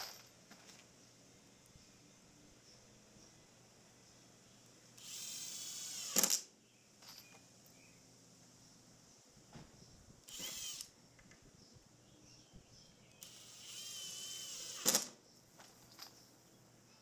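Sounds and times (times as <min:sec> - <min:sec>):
power drill whirring: 0:05.0 - 0:06.4, 0:10.3 - 0:10.9, 0:13.2 - 0:15.2.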